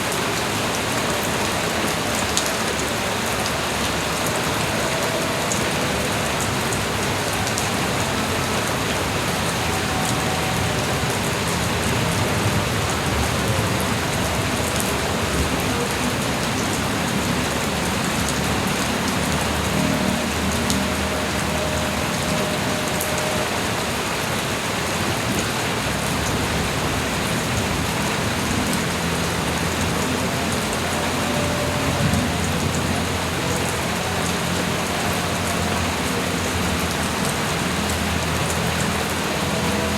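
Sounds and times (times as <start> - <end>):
light rain falling: 0.0 - 39.9
raindrops ticking: 0.0 - 39.9.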